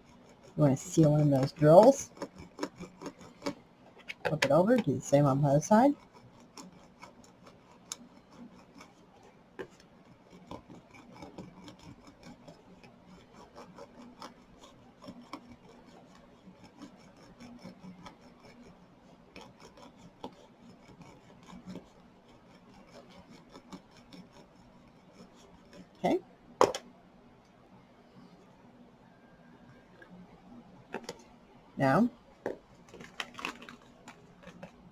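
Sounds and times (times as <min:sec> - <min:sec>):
roller rubbing on plastic: 0:00.0 - 0:26.1, 0:30.0 - 0:34.9
small irregular clicks: 0:01.8 - 0:04.3, 0:06.0 - 0:25.8, 0:32.5 - 0:34.9.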